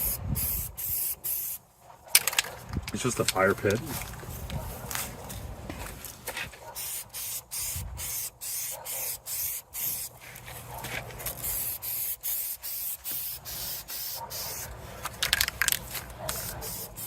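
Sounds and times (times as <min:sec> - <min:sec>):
spray paint can hissing: 0:00.0 - 0:01.6, 0:06.8 - 0:10.4, 0:11.2 - 0:17.0.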